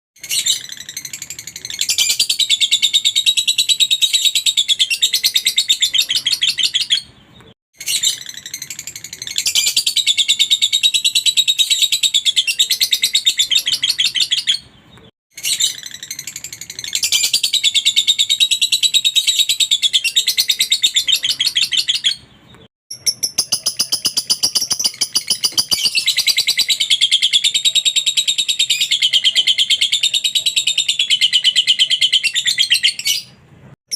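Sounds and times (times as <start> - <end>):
lovebird trilling song: 0.2 - 33.4.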